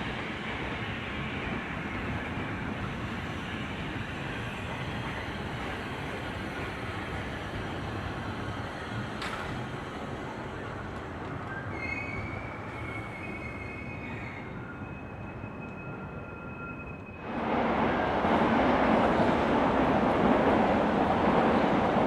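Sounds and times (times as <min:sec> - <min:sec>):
train rumble: 0:00.0 - 0:22.0
high-pitched train squeals: 0:11.4 - 0:17.3
train rushing past: 0:11.8 - 0:22.0.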